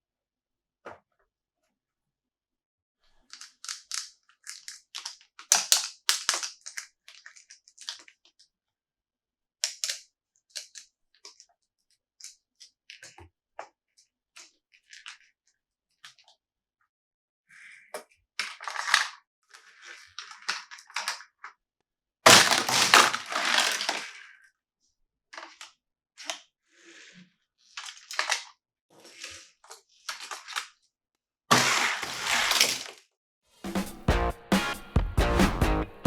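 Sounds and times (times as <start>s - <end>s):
packaging crinkling: 22.3s - 24.1s, 31.5s - 33.0s.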